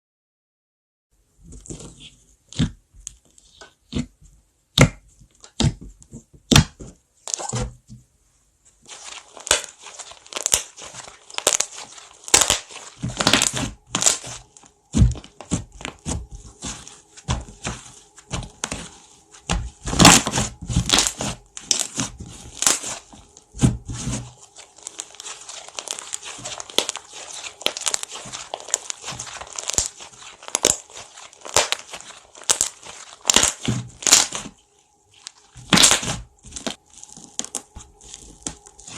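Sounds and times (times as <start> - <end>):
slime popping and crackling: 6.5 - 7.6, 8.9 - 38.9.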